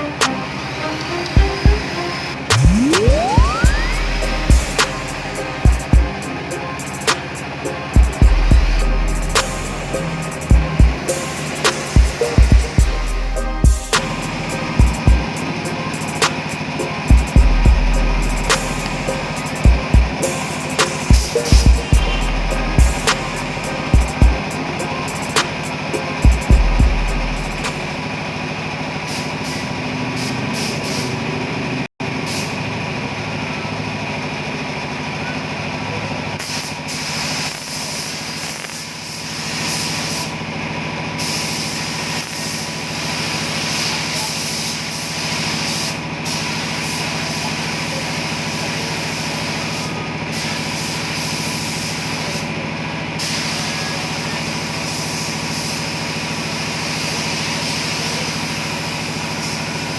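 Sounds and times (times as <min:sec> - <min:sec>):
high hiss: 0:00.0 - 0:28.1, 0:36.4 - 0:40.4, 0:41.2 - 0:52.5, 0:53.2 - 0:59.9
motor running: 0:00.0 - 0:28.2.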